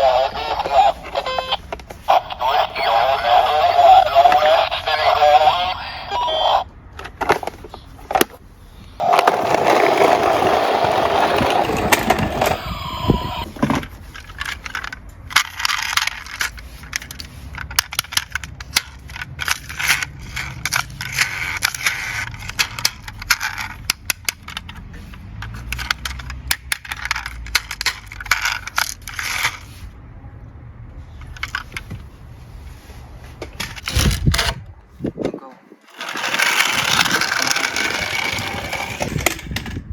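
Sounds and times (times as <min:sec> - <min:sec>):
toy cars rolling and clattering: 0:00.0 - 0:30.0, 0:31.0 - 0:32.1, 0:33.4 - 0:34.6, 0:35.8 - 0:39.9
scraping rush: 0:07.4 - 0:15.0, 0:35.8 - 0:39.8.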